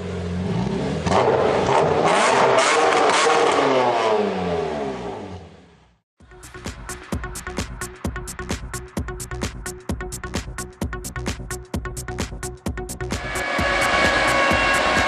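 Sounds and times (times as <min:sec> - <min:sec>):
diesel engine revving: 0:00.0 - 0:05.8, 0:13.1 - 0:15.0
electronic dance music: 0:06.4 - 0:15.0.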